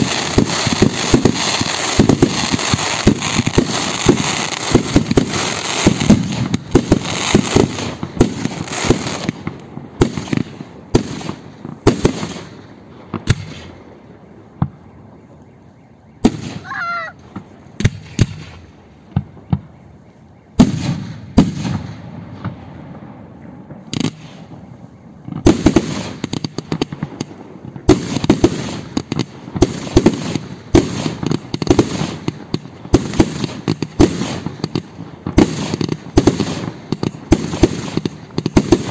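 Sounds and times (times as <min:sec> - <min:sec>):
warbling firework whistle: 0:00.0 - 0:09.4, 0:13.3 - 0:22.1, 0:23.0 - 0:26.3
firework crackling: 0:00.0 - 0:15.1, 0:16.2 - 0:38.9.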